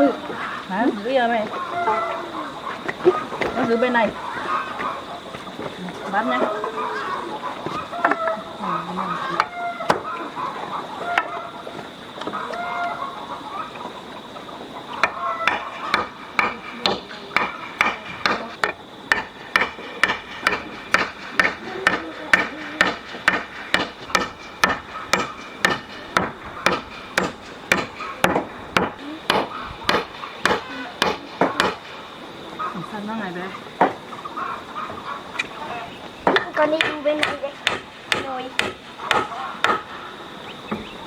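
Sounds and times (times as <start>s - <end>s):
hammering on wood: 9.3s - 10.1s, 15.0s - 32.2s, 36.2s - 40.0s.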